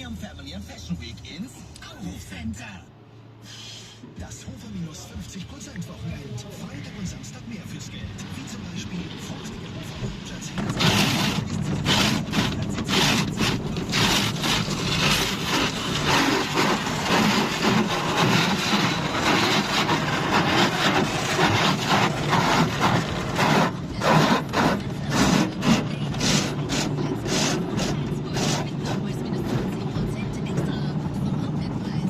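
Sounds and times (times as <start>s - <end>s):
low machinery hum: 0.1s - 32.0s
car wash brushes scrubbing: 6.6s - 32.0s.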